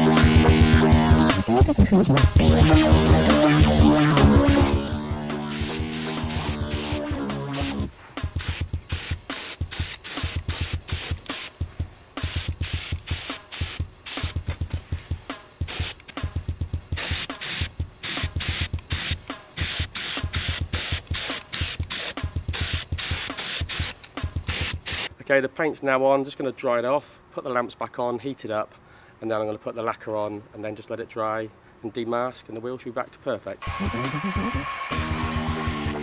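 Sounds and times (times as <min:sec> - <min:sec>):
spray gun hissing: 0:04.2 - 0:16.1, 0:16.9 - 0:25.1.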